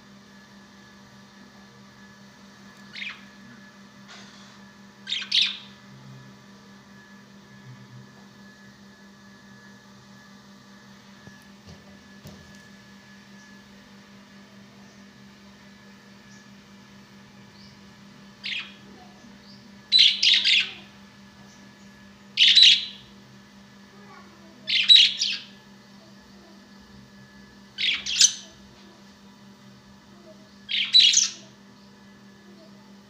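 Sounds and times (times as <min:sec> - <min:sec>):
steady low hum: 0:00.0 - 0:33.0
parrot calling harshly: 0:24.7 - 0:25.5.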